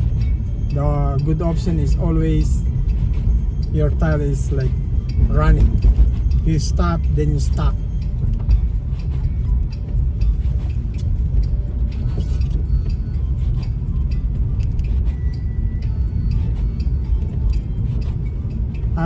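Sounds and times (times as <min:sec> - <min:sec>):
car driving on snowy road: 0:00.0 - 0:19.0.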